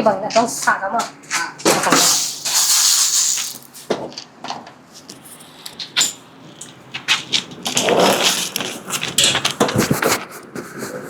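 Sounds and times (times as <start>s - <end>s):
hiss: 1.8s - 3.9s.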